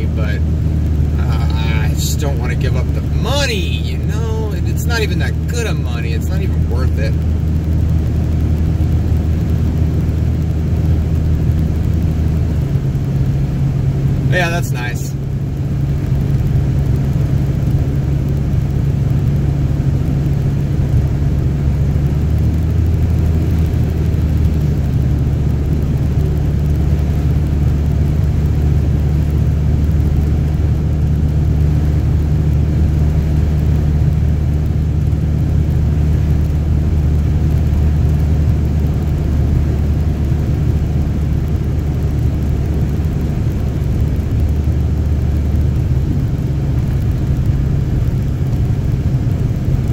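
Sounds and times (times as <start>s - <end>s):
car engine and road drone: 0.0s - 49.9s.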